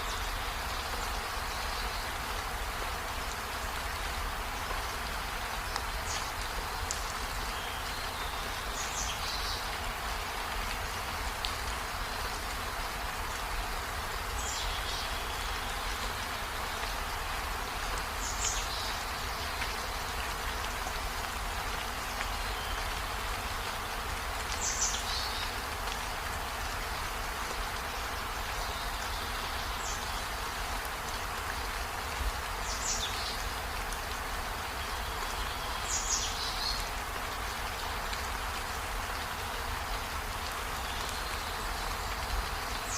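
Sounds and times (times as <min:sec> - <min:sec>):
steady rain: 0:00.0 - 0:42.9.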